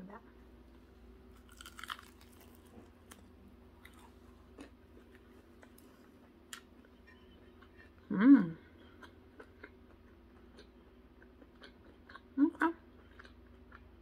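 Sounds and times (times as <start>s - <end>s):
crispy bite crunch: 1.3s - 5.8s
faint chewing: 1.4s - 6.9s, 13.0s - 14.0s.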